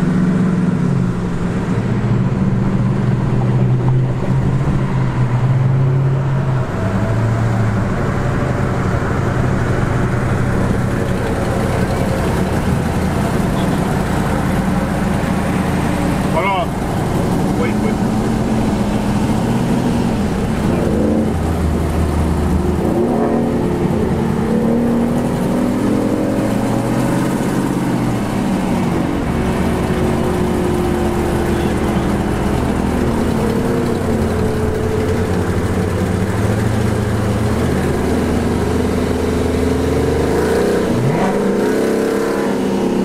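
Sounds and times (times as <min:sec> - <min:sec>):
car engine droning: 0:00.0 - 0:43.0.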